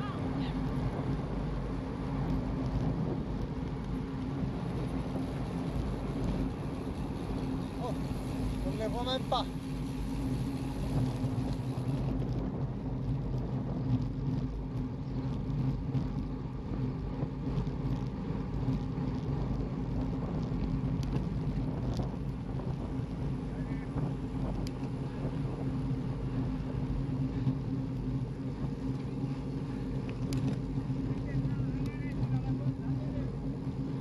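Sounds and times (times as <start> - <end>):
road and wind noise: 0.0 - 34.0
vehicle engine droning: 0.0 - 34.0
faint clicks: 30.0 - 32.3.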